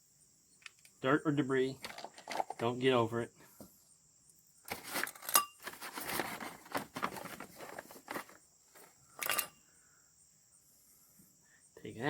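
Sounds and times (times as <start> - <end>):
cloth rustling: 4.7 - 9.5.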